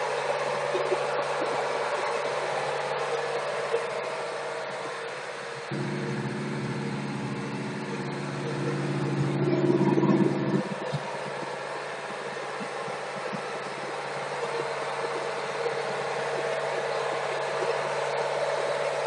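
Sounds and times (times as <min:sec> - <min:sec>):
deep engine drone: 0:00.0 - 0:19.0
boat engine running: 0:05.4 - 0:19.0.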